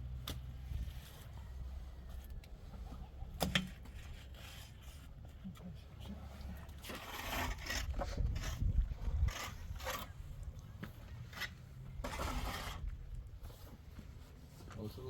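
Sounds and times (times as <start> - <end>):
tool scraping rough surface: 6.8 - 10.2, 11.3 - 13.0.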